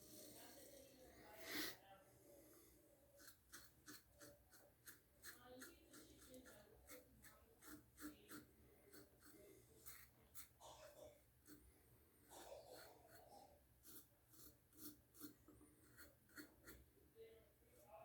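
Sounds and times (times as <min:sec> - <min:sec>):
razor scraping stubble: 0:03.2 - 0:10.6.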